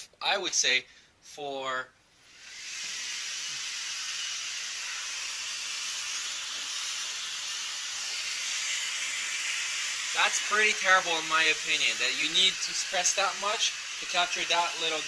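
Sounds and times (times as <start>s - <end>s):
stick vacuum running: 2.4s - 15.0s.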